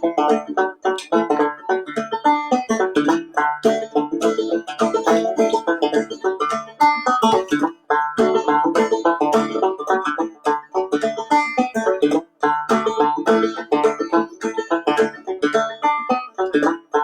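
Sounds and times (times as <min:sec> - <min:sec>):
banjo plucking a tune: 0:00.0 - 0:17.0.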